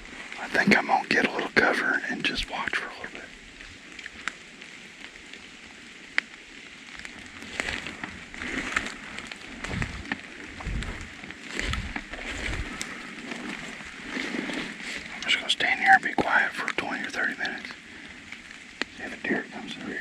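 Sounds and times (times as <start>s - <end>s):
footsteps rustling through leaves: 3.4s - 15.2s
low thumps: 9.5s - 13.0s.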